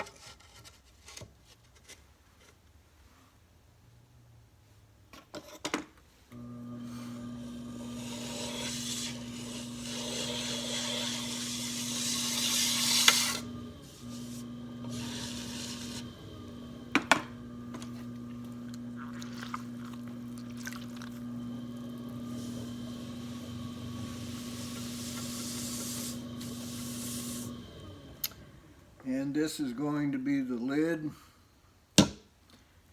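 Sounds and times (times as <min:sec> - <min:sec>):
potter's wheel motor hum: 0:06.3 - 0:29.0
hands and tools scraping: 0:07.8 - 0:16.2, 0:24.0 - 0:27.5.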